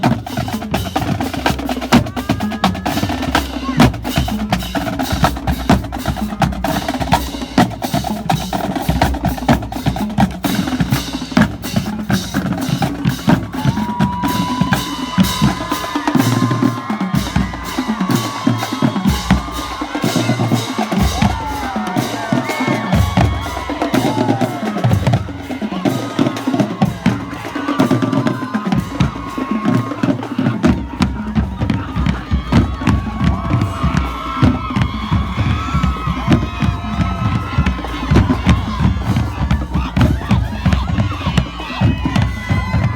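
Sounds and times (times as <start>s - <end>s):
marching drum line: 0.0s - 42.9s.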